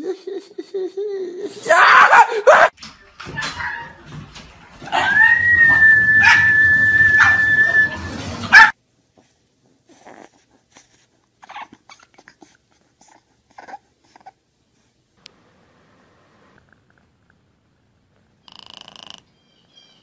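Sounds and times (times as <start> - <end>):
dog whining: 4.9 - 8.7, 11.4 - 14.4
puppy whimpering: 9.9 - 14.4.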